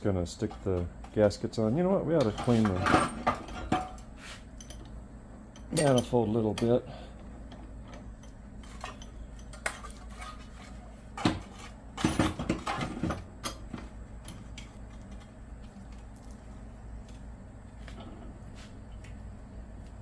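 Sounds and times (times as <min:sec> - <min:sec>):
metal tools clinking and clanking: 0:02.1 - 0:04.9, 0:05.6 - 0:06.8, 0:07.9 - 0:15.2.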